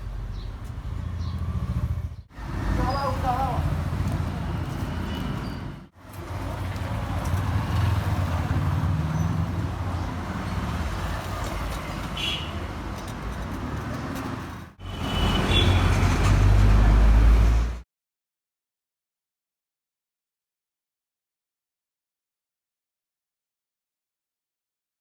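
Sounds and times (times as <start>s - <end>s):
road traffic rumble: 0.0s - 17.8s.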